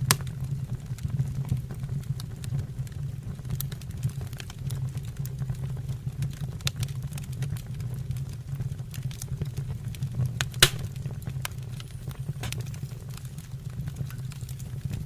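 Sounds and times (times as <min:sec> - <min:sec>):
wood fire crackling and popping: 0:00.0 - 0:15.0
steady low hum: 0:10.5 - 0:15.0.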